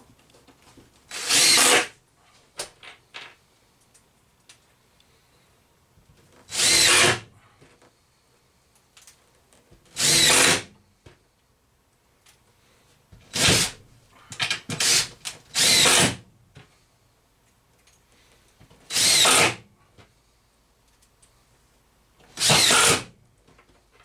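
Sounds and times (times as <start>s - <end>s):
power drill driving screws: 1.1s - 1.9s, 6.5s - 7.2s, 10.0s - 10.7s, 13.3s - 13.7s, 14.7s - 16.2s, 18.9s - 19.6s, 22.4s - 23.1s.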